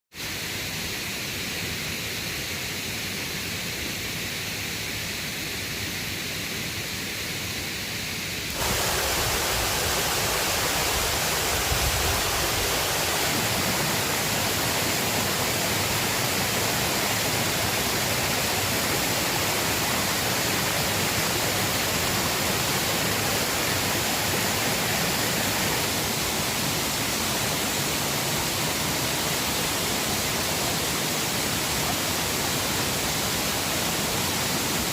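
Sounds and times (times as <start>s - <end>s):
river water rushing: 8.5s - 34.9s.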